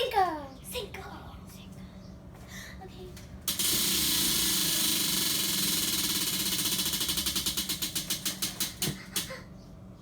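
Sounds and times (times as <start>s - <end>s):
prize wheel ticking: 3.5s - 8.8s.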